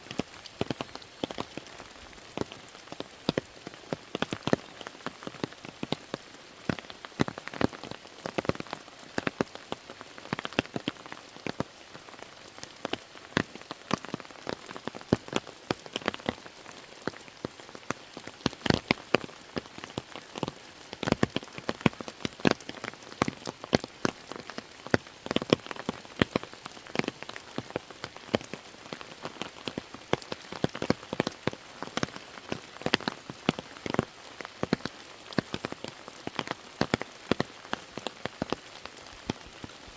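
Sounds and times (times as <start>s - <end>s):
raindrops pattering nearby: 0.0s - 39.9s.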